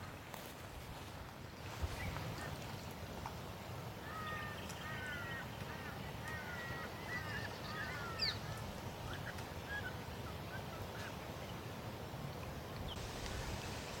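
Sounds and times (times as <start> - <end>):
birds chirping: 4.0 - 11.7.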